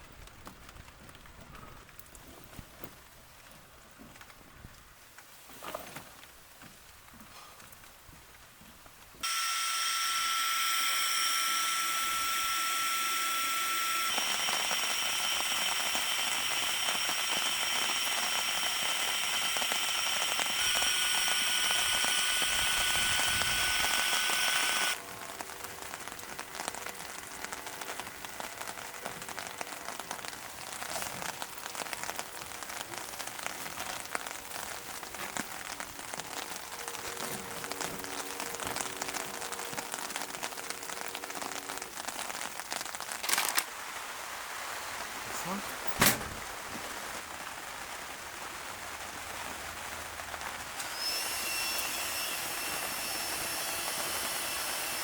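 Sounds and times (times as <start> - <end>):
rain pattering: 0.0 - 5.4, 11.5 - 24.2, 24.8 - 51.1
electric air pump whining: 9.2 - 25.0, 50.8 - 55.0.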